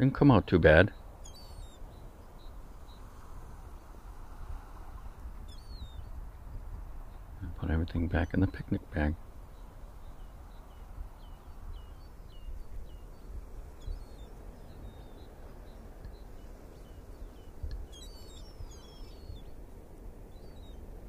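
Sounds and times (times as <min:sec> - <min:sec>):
outdoor background noise: 0:00.0 - 0:21.0
high bird chirps: 0:01.2 - 0:02.6, 0:09.6 - 0:19.6.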